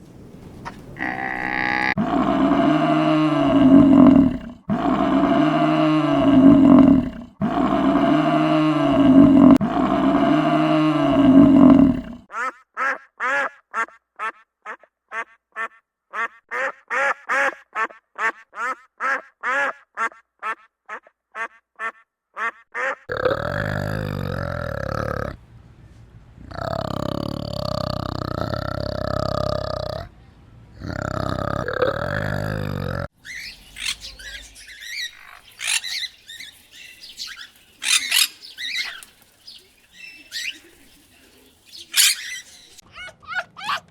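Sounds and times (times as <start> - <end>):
deep drawn-out animal calls: 0.6 - 16.7, 17.4 - 25.4, 26.4 - 30.1, 30.8 - 43.9
rough steady animal call: 1.0 - 25.4, 26.5 - 30.1, 30.8 - 43.9
duck quacks: 12.3 - 23.1.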